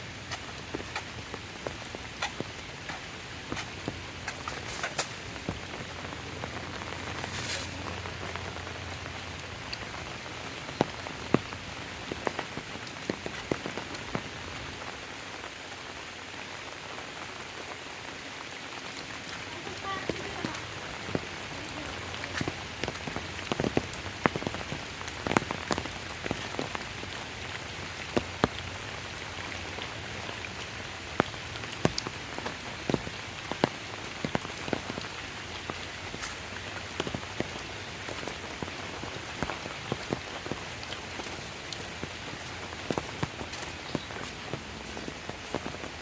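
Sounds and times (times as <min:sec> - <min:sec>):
steady rain falling: 0:00.0 - 0:46.0.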